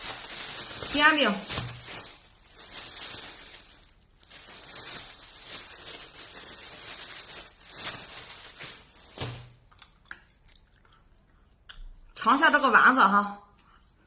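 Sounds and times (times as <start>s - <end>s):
plastic wrapping crinkling: 0.0s - 9.9s.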